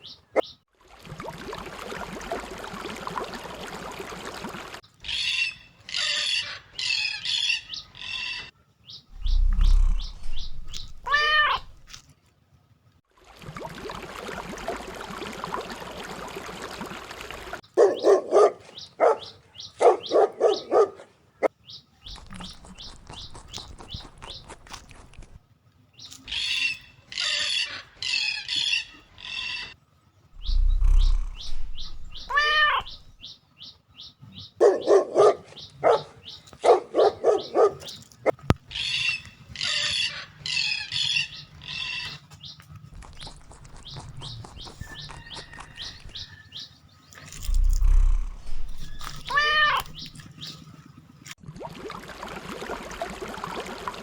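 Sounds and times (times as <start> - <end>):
shrill bird squawks: 5.0 - 8.5, 9.2 - 11.9, 26.2 - 29.8, 30.4 - 33.4, 38.7 - 42.2, 47.5 - 50.2
drawn-out animal call: 9.3 - 11.9, 22.1 - 25.4, 30.4 - 33.2, 38.7 - 50.6
dog-like yapping calls: 9.4 - 11.9, 17.7 - 21.1, 31.2 - 33.1, 34.6 - 38.4, 47.8 - 50.1.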